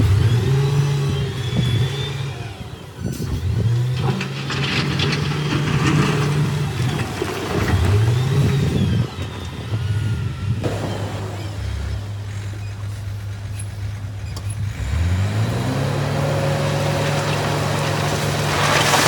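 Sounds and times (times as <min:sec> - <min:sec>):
diesel engine revving: 0:00.0 - 0:19.0
machinery clattering: 0:03.2 - 0:14.7.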